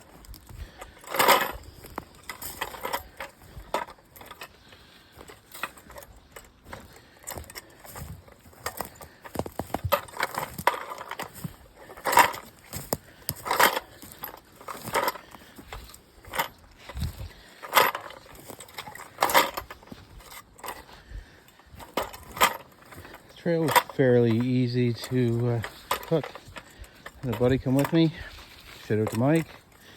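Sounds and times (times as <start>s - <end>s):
footsteps crunching through brush: 0.0s - 29.9s
noisemaker rattling: 0.0s - 29.9s.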